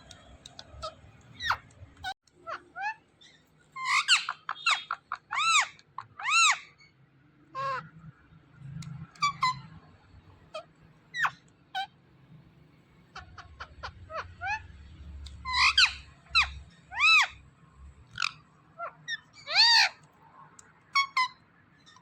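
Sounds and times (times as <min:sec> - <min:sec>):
parrot chirping: 0:00.4 - 0:06.8, 0:09.0 - 0:09.8, 0:10.5 - 0:11.9, 0:15.3 - 0:17.4, 0:18.1 - 0:20.0, 0:21.0 - 0:22.0
parrot squawking: 0:00.5 - 0:03.0, 0:03.8 - 0:06.8, 0:09.1 - 0:09.7, 0:10.5 - 0:11.9, 0:15.4 - 0:17.4, 0:18.1 - 0:20.0, 0:21.0 - 0:21.9.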